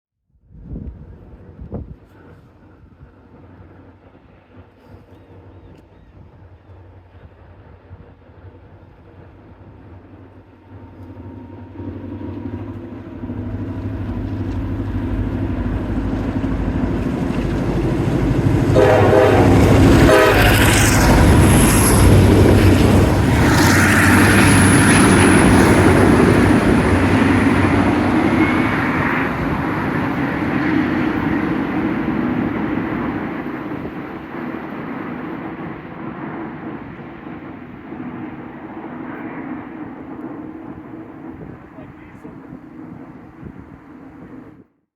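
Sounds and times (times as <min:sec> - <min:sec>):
diesel locomotive rumble: 0:00.8 - 0:44.5
train horn blast: 0:18.6 - 0:31.6.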